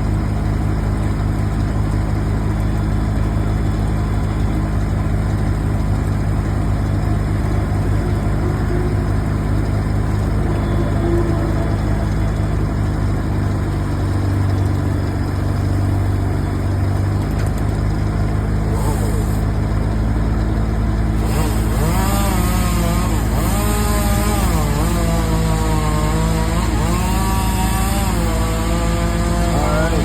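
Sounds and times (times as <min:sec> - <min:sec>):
heavy engine running: 0:00.0 - 0:30.0
chainsaw revving and cutting: 0:06.2 - 0:14.6, 0:18.4 - 0:20.0, 0:20.8 - 0:30.0.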